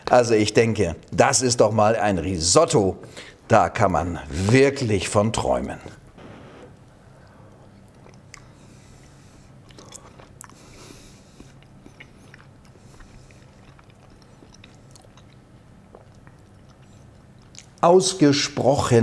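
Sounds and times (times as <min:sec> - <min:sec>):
man chewing food: 0:05.9 - 0:17.8.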